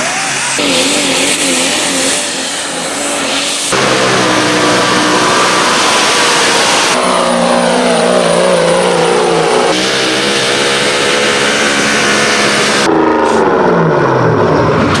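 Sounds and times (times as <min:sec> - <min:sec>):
engine running hard under load: 0:00.0 - 0:15.0.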